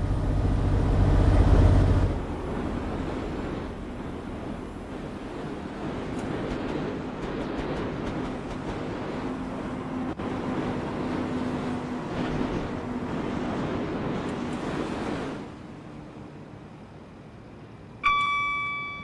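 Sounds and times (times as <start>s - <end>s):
moving train rumbling: 0.0s - 19.0s
faint humming tone: 18.0s - 19.0s.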